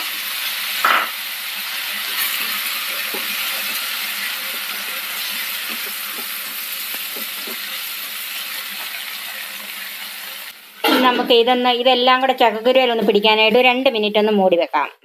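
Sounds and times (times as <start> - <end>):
food sizzling in a frying pan: 0.0 - 13.2
wooden spatula stirring: 1.8 - 9.5.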